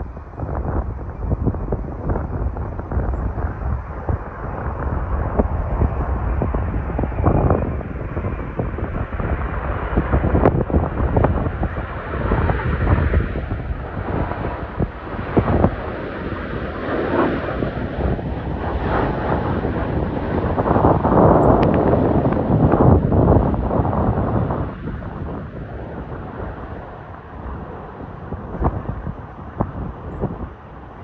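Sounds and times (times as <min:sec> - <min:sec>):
jet engines passing: 0:00.0 - 0:31.0
wind buffeting microphone: 0:00.0 - 0:31.0.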